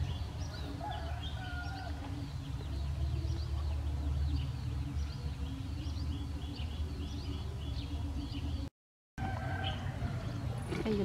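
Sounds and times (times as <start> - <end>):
small birds chirping: 0.0 - 8.7.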